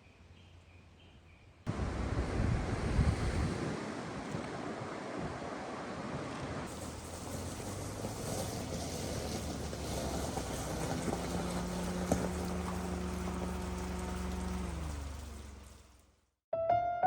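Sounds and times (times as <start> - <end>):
wind-like outdoor noise: 0.0 - 13.4
steady motor hum: 10.8 - 16.0.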